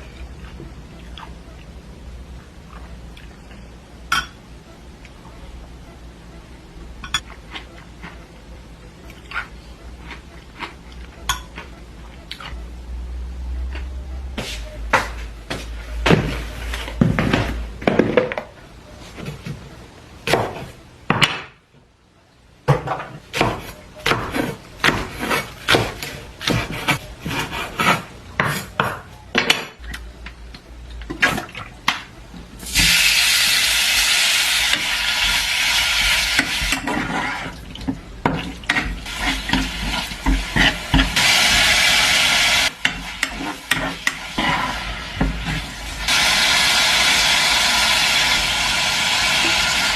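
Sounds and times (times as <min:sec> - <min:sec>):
loud steady hiss: 0:45.8 - 0:49.9.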